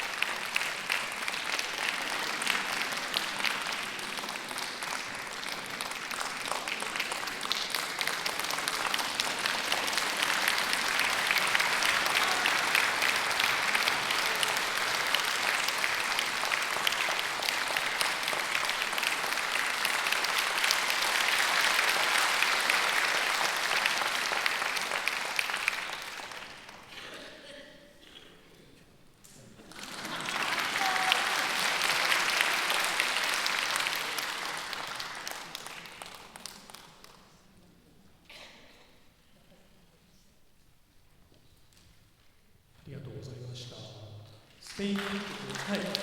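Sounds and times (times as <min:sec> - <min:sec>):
audience applauding: 0:00.0 - 0:27.0, 0:29.6 - 0:37.2, 0:44.6 - 0:46.0.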